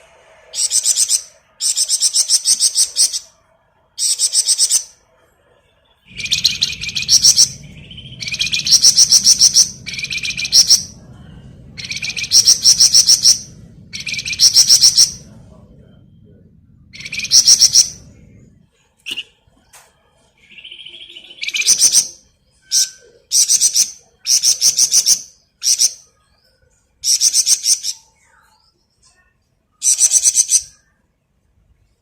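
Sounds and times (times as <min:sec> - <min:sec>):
songbird rattling song: 0:00.6 - 0:03.3, 0:04.0 - 0:05.0, 0:06.1 - 0:11.0, 0:11.8 - 0:15.3, 0:16.9 - 0:18.1, 0:20.4 - 0:26.1, 0:27.0 - 0:28.1, 0:29.8 - 0:30.8.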